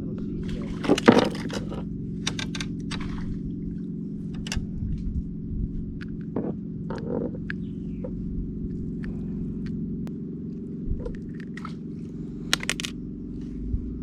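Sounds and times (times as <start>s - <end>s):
low motor hum: 0.0s - 14.0s
sharp clicks and taps: 12.6s - 12.9s.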